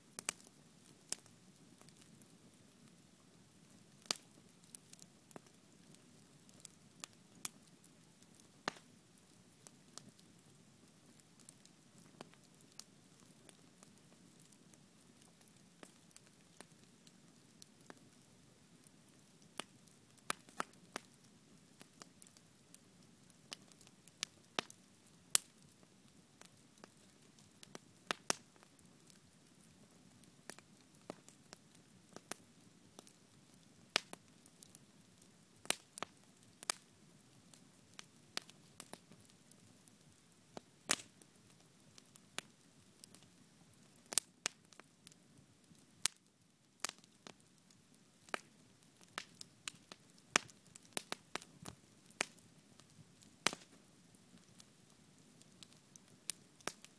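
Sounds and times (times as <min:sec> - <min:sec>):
campfire pops and snaps: 0:00.2 - 0:02.1, 0:04.0 - 0:05.5, 0:08.3 - 0:08.9, 0:19.6 - 0:21.1, 0:23.5 - 0:25.7, 0:26.4 - 0:29.2, 0:30.5 - 0:31.4, 0:32.1 - 0:33.1, 0:33.9 - 0:34.7, 0:35.6 - 0:36.9, 0:37.9 - 0:39.3, 0:40.6 - 0:41.2, 0:44.0 - 0:46.2, 0:46.8 - 0:53.8, 0:55.6 - 0:56.9.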